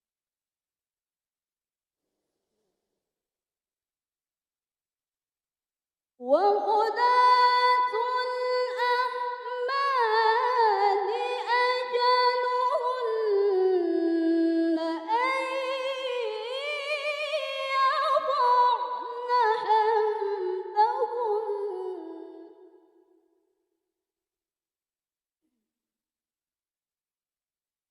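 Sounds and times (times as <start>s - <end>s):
woman reciting melodically: 6.2s - 22.5s.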